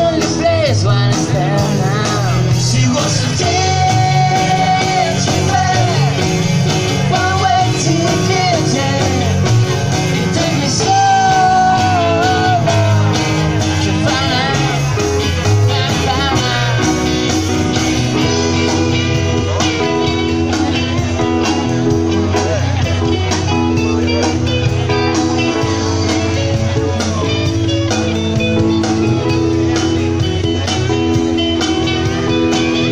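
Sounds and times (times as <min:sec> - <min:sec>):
person singing: 0:00.0 - 0:19.9
bass guitar: 0:00.0 - 0:32.9
drums: 0:00.0 - 0:32.9
electric guitar: 0:00.0 - 0:32.9.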